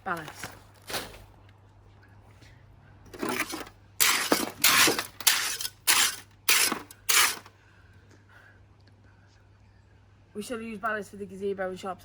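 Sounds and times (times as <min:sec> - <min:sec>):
shovel scraping through gravel: 0:03.2 - 0:07.5.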